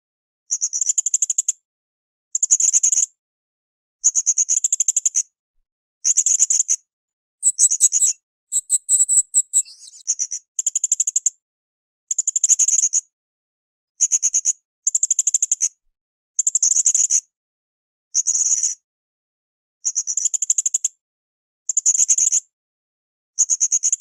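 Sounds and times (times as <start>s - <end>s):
parrot calling in pulsed trills: 7.4s - 10.0s.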